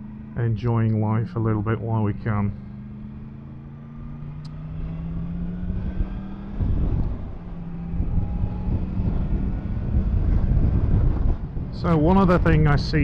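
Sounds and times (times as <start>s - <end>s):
motorcycle engine running: 0.0s - 13.0s
wind noise on microphone: 4.8s - 13.0s.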